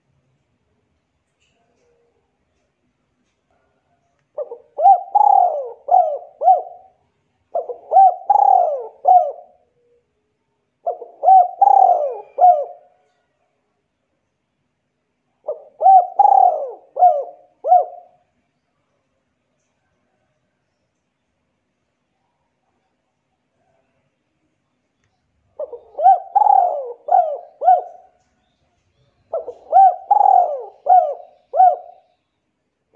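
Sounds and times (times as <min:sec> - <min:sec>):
bird calling: 0:04.4 - 0:07.0, 0:07.6 - 0:10.0, 0:10.8 - 0:12.9, 0:15.5 - 0:18.2, 0:25.6 - 0:32.2.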